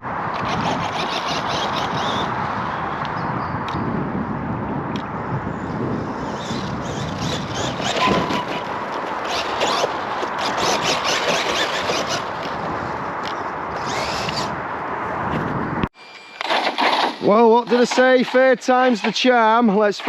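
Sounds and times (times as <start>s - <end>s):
rc truck motor running: 0.3s - 2.8s, 6.0s - 12.5s, 13.8s - 14.6s
tyres scraping and clattering: 16.4s - 20.0s.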